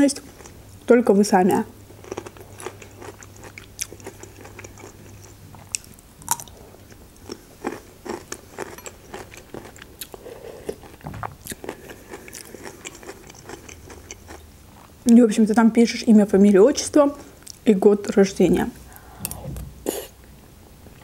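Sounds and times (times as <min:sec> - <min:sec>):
person eating crunchy food: 0:01.9 - 0:14.9.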